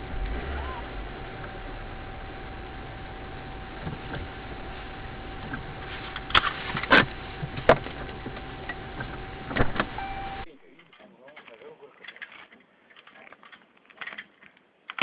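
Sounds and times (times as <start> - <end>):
car road and engine noise: 0.0 - 10.5
thin whine: 0.0 - 10.6.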